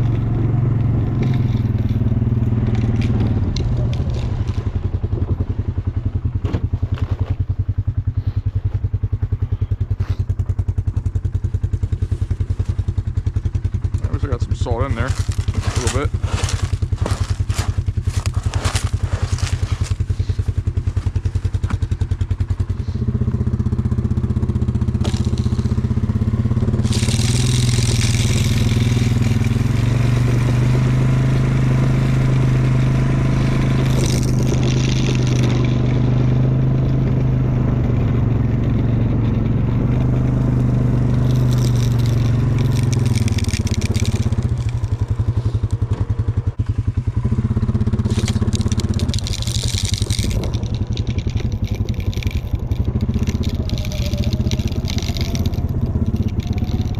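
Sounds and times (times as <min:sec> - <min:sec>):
vehicle engine idling and revving: 0:00.0 - 0:56.9
hissing crunch: 0:14.8 - 0:21.7, 0:24.8 - 0:31.6, 0:32.2 - 0:36.6, 0:39.8 - 0:45.9, 0:47.7 - 0:56.9.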